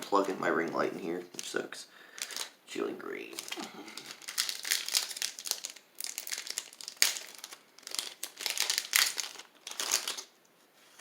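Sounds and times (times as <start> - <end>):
foil wrapper crinkling: 1.4 - 2.6, 3.2 - 10.4.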